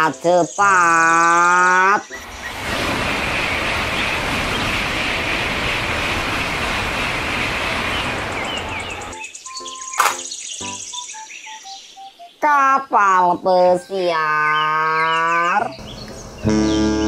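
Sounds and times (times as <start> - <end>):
high-speed train passing: 2.0 - 10.3
bird chirps: 7.9 - 12.5, 13.8 - 17.0
sharp click: 9.9 - 10.4.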